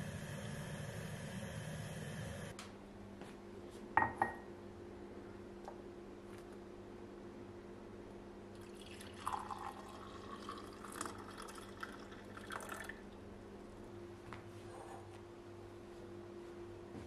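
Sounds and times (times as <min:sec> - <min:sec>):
steady low hum: 0:00.0 - 0:17.0
liquid pouring and splashing: 0:08.6 - 0:13.0.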